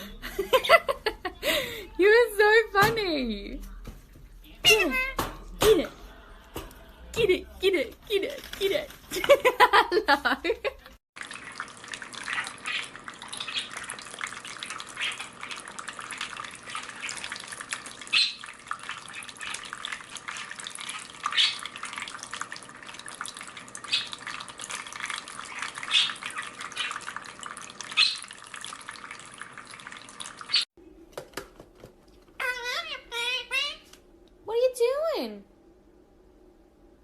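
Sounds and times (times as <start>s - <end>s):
water splashes: 11.2s - 30.7s.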